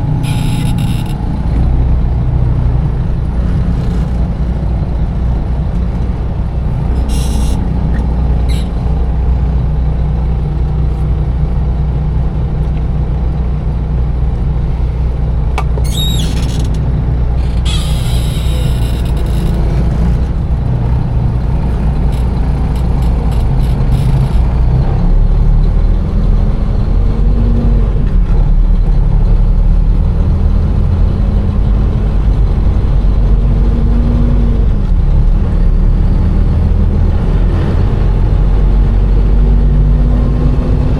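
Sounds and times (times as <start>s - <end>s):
sharp squeal: 0.0s - 1.6s, 6.8s - 9.0s, 15.7s - 16.8s, 17.4s - 19.7s
truck engine running: 0.0s - 40.9s.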